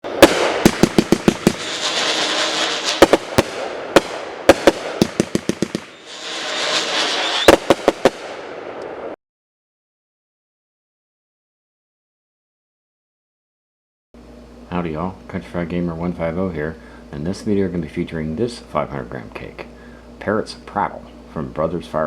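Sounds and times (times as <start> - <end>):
fireworks sharp bangs: 0.0 - 8.8
fireworks whistling hiss: 0.1 - 8.4.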